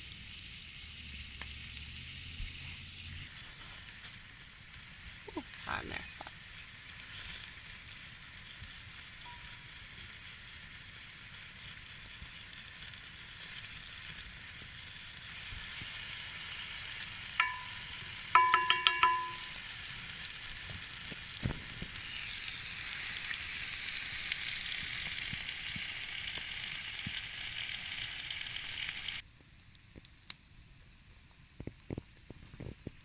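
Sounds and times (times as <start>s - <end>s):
food sizzling in a pan: 0.0s - 29.2s
metallic clinks: 17.4s - 19.6s.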